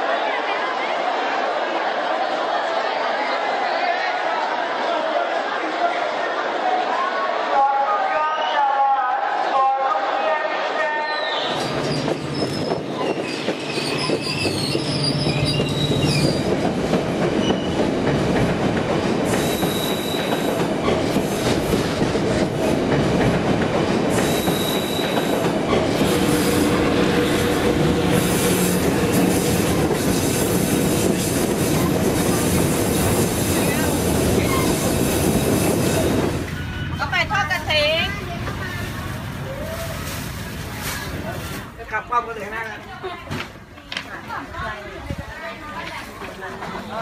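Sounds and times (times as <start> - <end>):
high wheel squeal: 11.1 - 16.6
train wheels rumbling on rails: 11.6 - 41.3.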